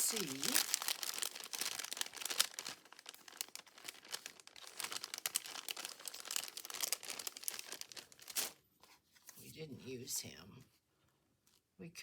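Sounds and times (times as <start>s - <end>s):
paper rustling and crinkling: 0.0s - 9.5s.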